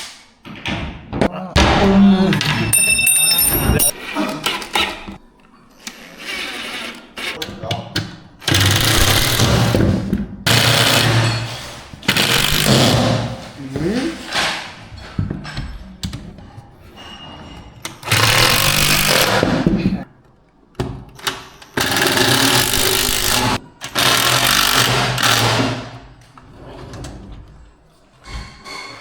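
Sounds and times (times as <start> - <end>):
power tool running: 8.4 - 9.9, 10.5 - 11.2, 12.0 - 13.3, 18.0 - 19.4, 21.8 - 25.9.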